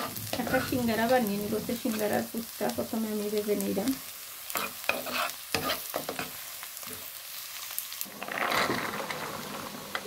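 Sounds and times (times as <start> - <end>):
spatula scraping and tapping pan: 0.0 - 2.2, 4.5 - 7.1
onions sizzling in oil: 0.0 - 10.0.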